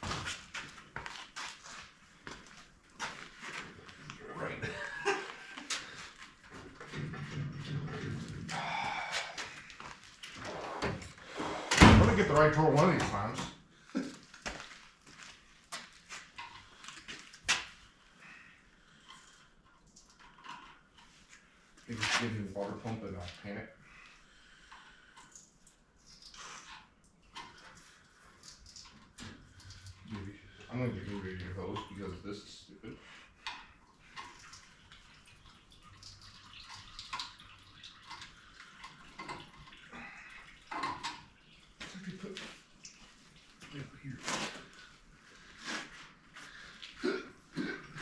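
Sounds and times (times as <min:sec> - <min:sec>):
coolant trickling and splashing: 0:00.0 - 0:48.0.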